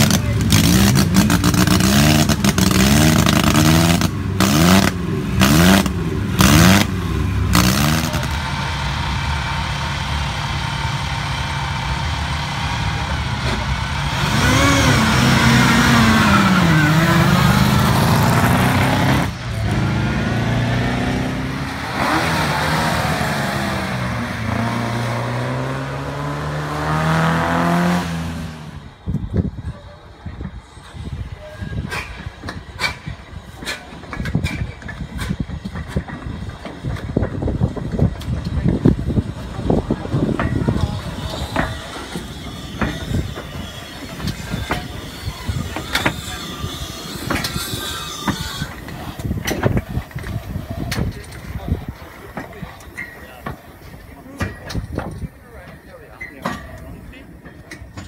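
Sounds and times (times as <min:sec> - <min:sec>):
car accelerating away: 0:00.0 - 0:28.9
racing car engine revving: 0:00.0 - 0:29.0.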